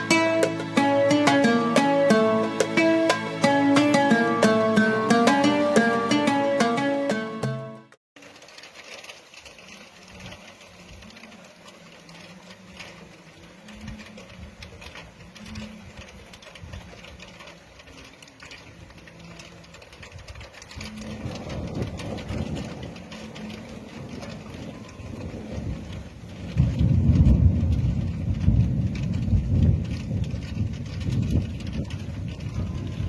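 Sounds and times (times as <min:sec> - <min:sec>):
rain pattering: 0:00.0 - 0:07.3, 0:08.2 - 0:33.0
low thunder rumble: 0:20.8 - 0:33.0.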